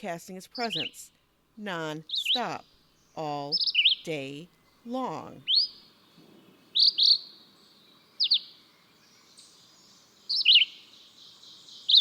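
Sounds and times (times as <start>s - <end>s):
bird singing whistled notes: 0.6s - 1.0s, 2.1s - 4.1s, 5.4s - 12.0s.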